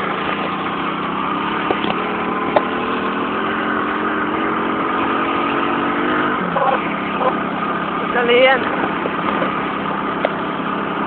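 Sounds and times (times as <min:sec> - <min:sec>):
motorbike engine running: 0:00.0 - 0:11.0.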